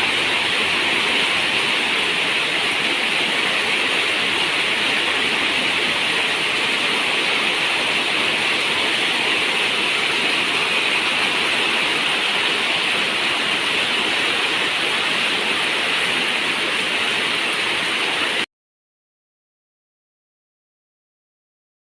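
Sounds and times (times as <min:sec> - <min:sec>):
dense rain on a metal roof: 0:00.0 - 0:18.5.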